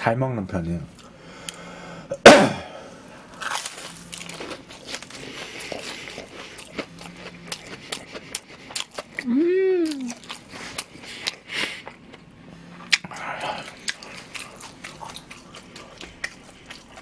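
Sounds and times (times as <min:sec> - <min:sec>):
crunchy chewing: 0:03.2 - 0:17.0
loud bite crunch: 0:03.3 - 0:12.2.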